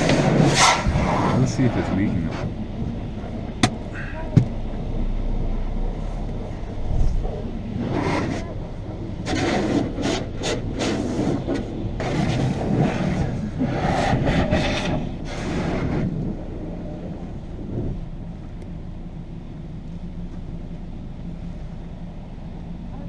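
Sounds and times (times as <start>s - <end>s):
car engine idling: 0.0s - 23.0s
car wash spraying and rubbing: 7.0s - 16.6s.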